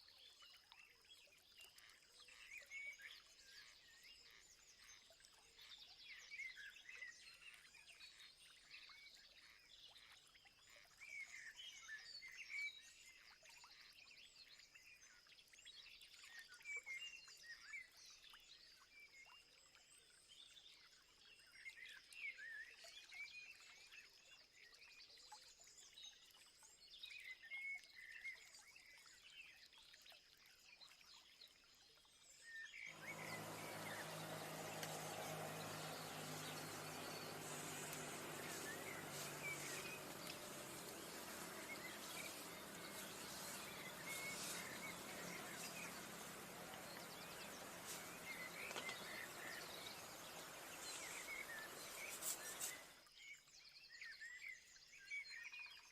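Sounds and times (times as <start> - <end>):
small birds chirping: 32.9 - 53.0
even hiss: 33.0 - 52.9.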